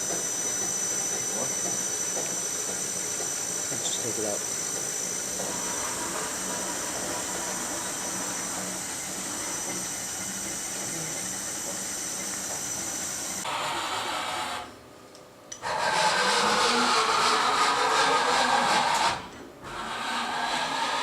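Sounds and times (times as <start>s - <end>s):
machining center running: 0.0s - 14.8s.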